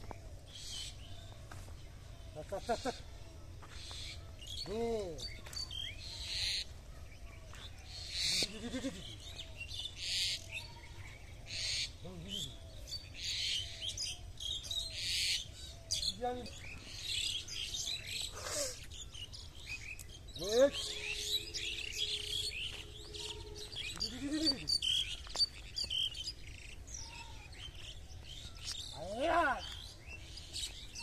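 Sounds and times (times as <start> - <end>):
small bird chirps: 0.0 - 31.0
lower short bird calls: 2.2 - 31.0
harsh high bird call: 20.3 - 25.3.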